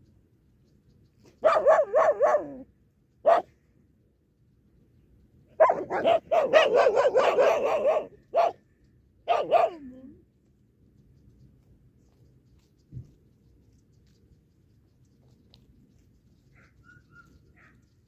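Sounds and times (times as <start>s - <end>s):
dogs barking: 1.4s - 2.6s, 3.3s - 3.5s, 5.6s - 8.6s, 9.3s - 9.8s.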